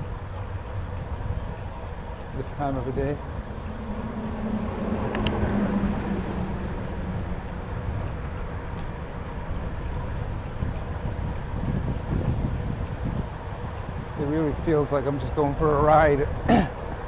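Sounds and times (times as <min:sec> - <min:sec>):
low rumble of bicycle riding: 0:00.0 - 0:17.0
wind rushing over microphone: 0:00.0 - 0:17.0
sharp clicks: 0:05.0 - 0:05.6.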